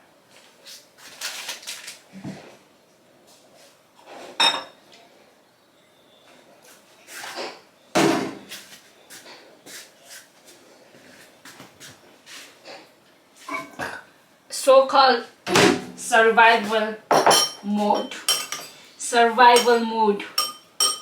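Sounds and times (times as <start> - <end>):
kitchenware clinking: 4.3 - 4.8, 13.5 - 14.1, 17.1 - 18.9, 19.5 - 21.0
kitchenware knock: 17.1 - 18.6, 20.4 - 21.0.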